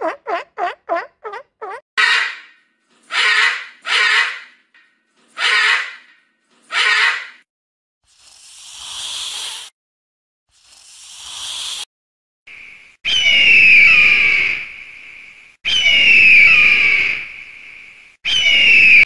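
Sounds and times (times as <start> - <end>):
loud screeching calls: 5.4 - 6.1.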